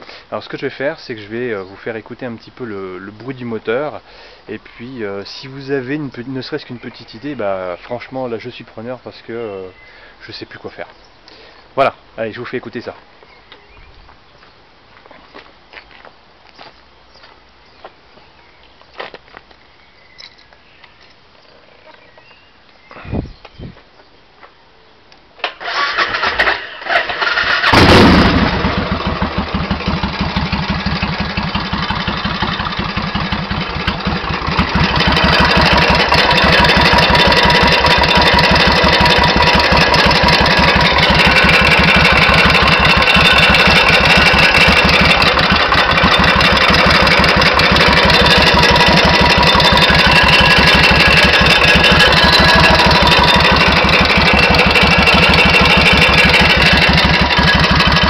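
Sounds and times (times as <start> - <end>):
motorcycle engine cranking: 25.4 - 58.0
motorcycle engine idling: 27.2 - 58.0.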